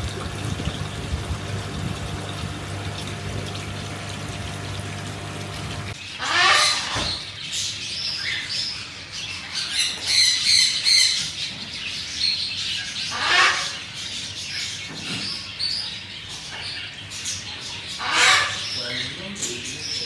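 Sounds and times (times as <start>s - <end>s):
birds chirping and squawking: 5.9s - 20.0s.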